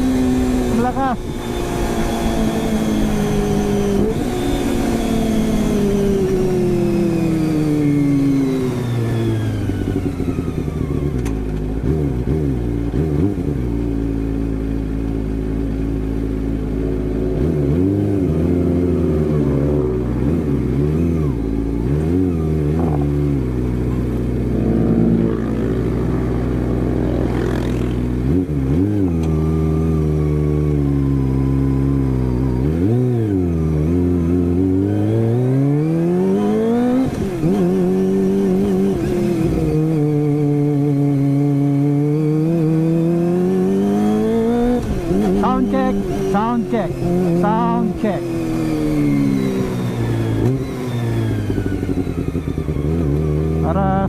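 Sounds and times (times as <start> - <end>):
motorcycle engine revs falling: 32.3 - 53.7.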